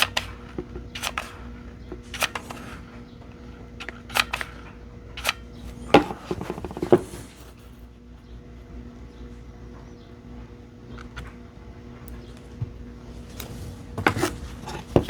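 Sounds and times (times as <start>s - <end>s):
battery cells clicking on bench: 0.0s - 6.3s, 10.9s - 11.4s.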